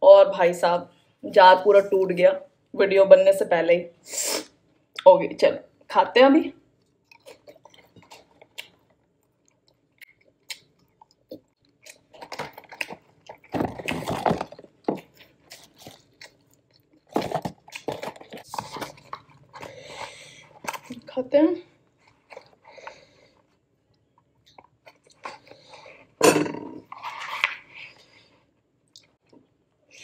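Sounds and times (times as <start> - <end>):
chewing and crunching fries: 6.8 - 21.1, 22.0 - 26.0.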